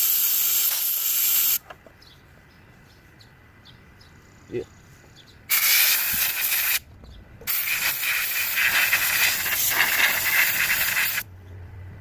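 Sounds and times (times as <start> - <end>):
compressed air blowgun hissing: 0.0 - 1.6, 5.5 - 6.8, 7.5 - 11.2.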